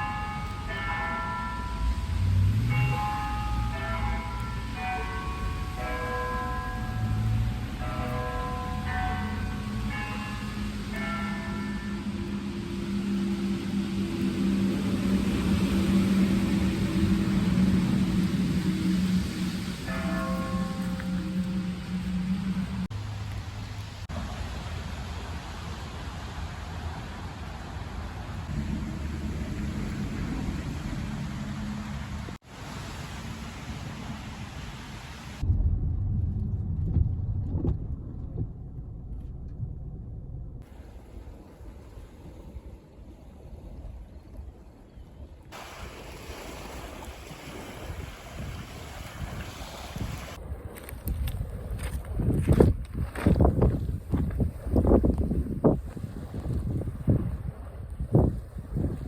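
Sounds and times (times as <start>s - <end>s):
rain hiss: 0.0s - 35.4s, 45.6s - 50.4s
road noise rumble: 0.0s - 43.9s
car engine hum: 1.7s - 24.1s, 28.2s - 32.4s
muffled low rumble: 11.0s - 24.4s, 35.4s - 41.9s.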